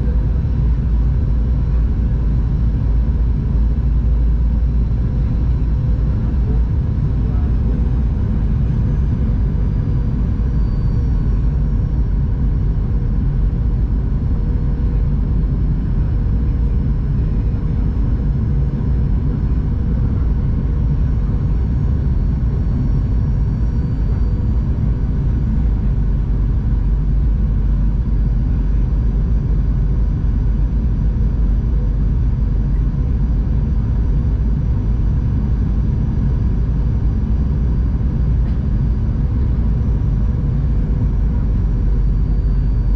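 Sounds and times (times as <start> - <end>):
airplane cabin drone: 0.0 - 42.9
faint whining tones: 2.8 - 14.6, 40.5 - 42.9.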